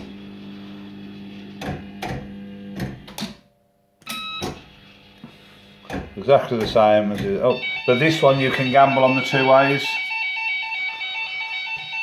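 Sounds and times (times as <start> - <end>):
fruit machine motor hum: 0.0 - 3.1.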